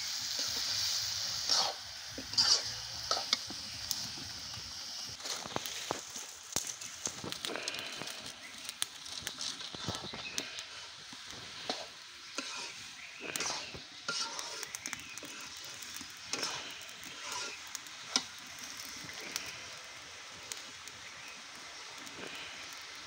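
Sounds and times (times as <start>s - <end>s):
spatula scraping a pan: 0.0s - 4.3s, 9.6s - 19.4s
meat sizzling in a wok: 0.0s - 23.0s.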